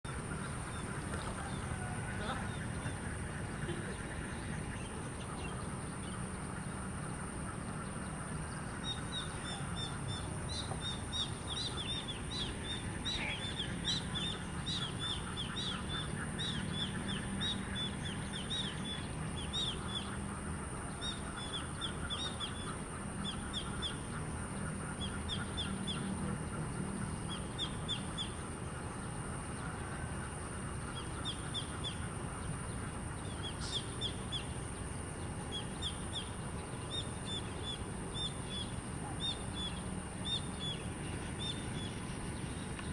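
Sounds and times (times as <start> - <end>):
birds chirping: 0.1 - 42.9
steady high-pitched whine: 0.1 - 42.9.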